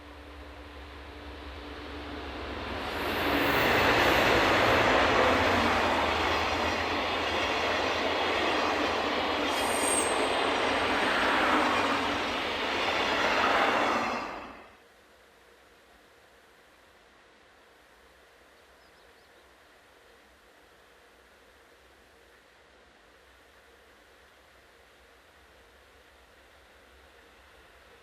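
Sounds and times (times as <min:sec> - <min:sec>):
freight train wheels rumbling: 0:00.0 - 0:14.7
high wheel squeal: 0:09.4 - 0:10.6.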